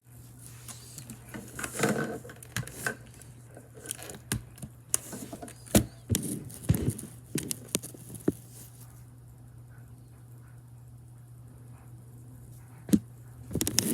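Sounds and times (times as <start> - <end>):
steady low hum: 0.0 - 13.9
mechanical keyboard typing: 13.6 - 13.9.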